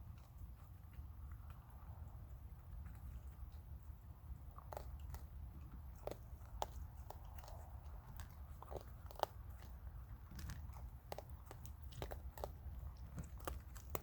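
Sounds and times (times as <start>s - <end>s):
raccoons crunching dry food: 0.0s - 14.0s
steady low hum: 0.0s - 14.0s.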